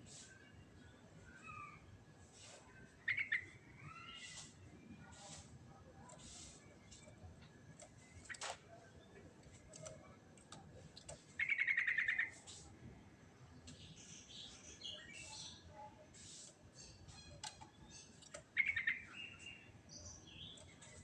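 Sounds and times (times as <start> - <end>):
bird chirping and trilling: 3.0 - 5.2, 11.4 - 12.4, 16.8 - 21.0
high chattering bird notes: 11.2 - 12.6, 16.2 - 21.0.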